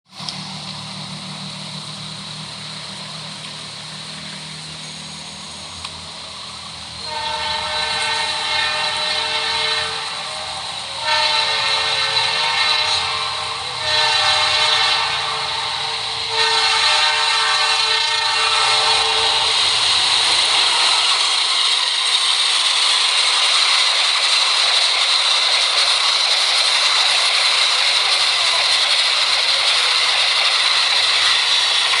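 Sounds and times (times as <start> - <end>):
train rushing past on rails: 0.1 - 32.0
train horn chord: 7.0 - 21.4.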